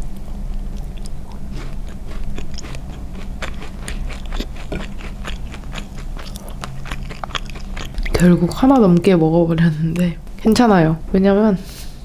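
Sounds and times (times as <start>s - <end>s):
cookie crunching while chewing: 0.0s - 9.1s
steady low hum: 0.0s - 12.0s.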